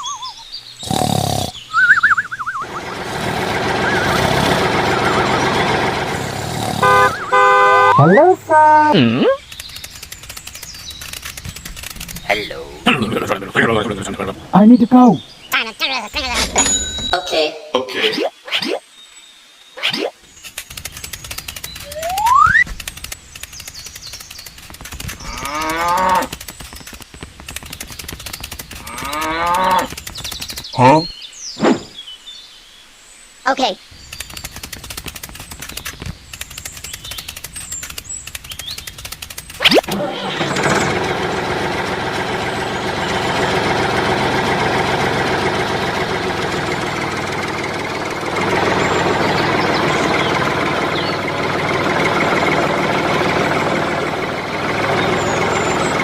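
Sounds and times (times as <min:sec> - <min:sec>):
mechanical running noise: 0:00.9 - 0:15.3, 0:20.3 - 0:31.0, 0:34.0 - 0:56.0
steady fast clicking: 0:09.4 - 0:12.4, 0:20.4 - 0:30.8, 0:34.0 - 0:56.0
cow mooing: 0:25.2 - 0:26.3, 0:28.8 - 0:29.9.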